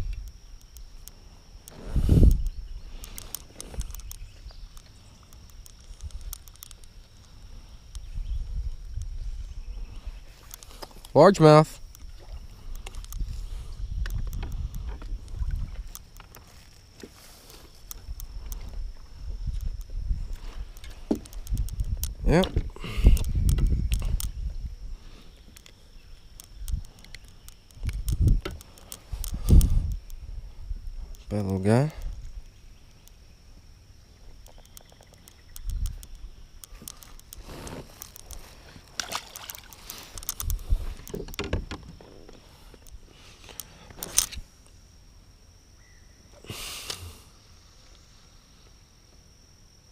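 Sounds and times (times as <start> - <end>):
wind on microphone: 0.0 - 0.3, 1.7 - 4.7, 8.0 - 10.4, 12.1 - 16.0, 18.0 - 25.4, 27.8 - 31.3, 40.3 - 42.4
sharp ticks and knocks: 0.0 - 8.1, 11.8 - 17.2, 19.5 - 24.6, 25.4 - 30.2, 34.2 - 44.4
water splashing and sloshing: 11.9 - 13.4, 37.7 - 42.8.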